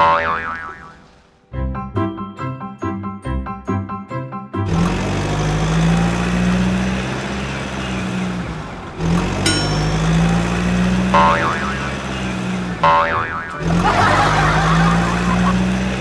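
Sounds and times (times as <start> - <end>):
engine running steadily: 4.7 - 16.0
wavering siren: 11.1 - 15.0.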